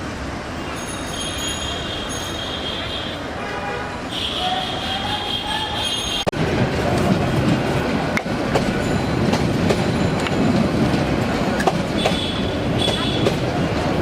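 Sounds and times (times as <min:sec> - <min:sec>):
train rumbling past: 0:00.0 - 0:14.0
train wheels clacking: 0:04.8 - 0:14.0.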